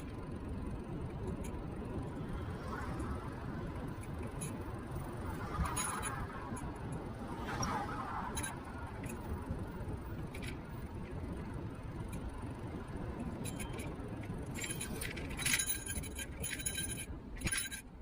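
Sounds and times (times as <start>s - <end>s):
sharp clicks and rattles: 0.0s - 18.0s
wind and road rumble: 0.0s - 18.0s.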